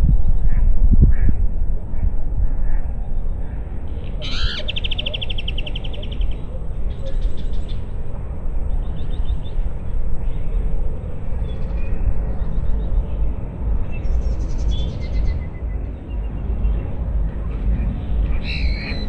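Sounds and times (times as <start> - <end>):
wind rumble on microphone: 0.0 - 19.0
songbirds trilling: 4.2 - 8.0, 17.8 - 19.0.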